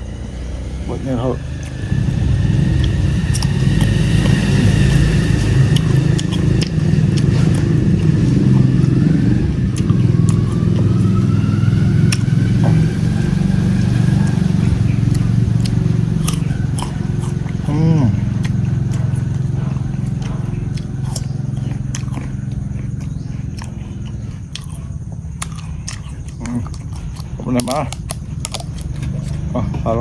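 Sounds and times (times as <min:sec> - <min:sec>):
engine low rumble: 0:00.0 - 0:30.0.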